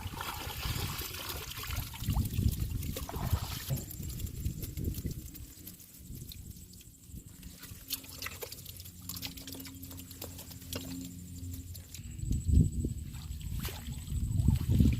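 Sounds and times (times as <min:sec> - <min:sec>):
water splash: 0:00.0 - 0:04.1, 0:13.1 - 0:14.9
water dripping and sloshing: 0:00.0 - 0:14.9.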